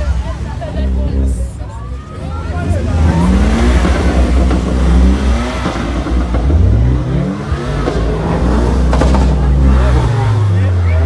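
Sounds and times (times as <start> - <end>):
car engine revving loudly: 0.0 - 11.0
sharp crack: 3.1 - 10.6.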